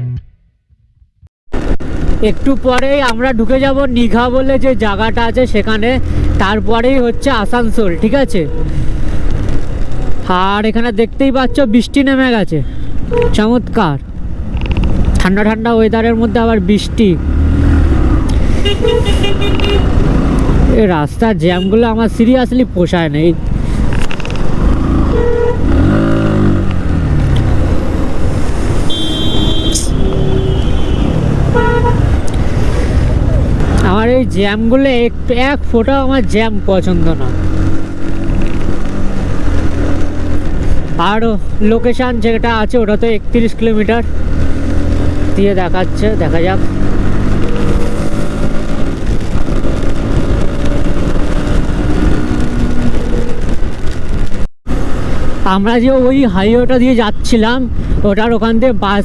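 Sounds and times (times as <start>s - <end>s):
traffic engines running: 1.5s - 59.0s
vehicle horns honking: 13.1s - 13.4s, 18.5s - 20.0s, 21.5s - 21.9s, 25.1s - 25.7s, 28.8s - 32.2s
wind rushing over microphone: 22.7s - 35.6s, 37.2s - 41.6s, 44.0s - 56.1s.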